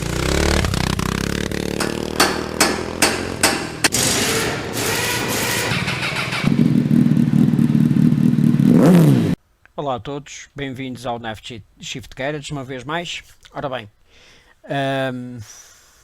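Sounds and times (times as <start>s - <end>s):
motorcycle engine running: 0.0s - 9.4s
sharp knocks: 1.7s - 4.2s.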